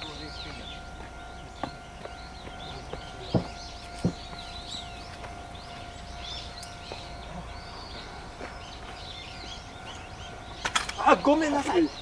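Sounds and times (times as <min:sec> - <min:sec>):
small birds chirping: 0:00.0 - 0:12.0
dull knocks: 0:01.0 - 0:04.5.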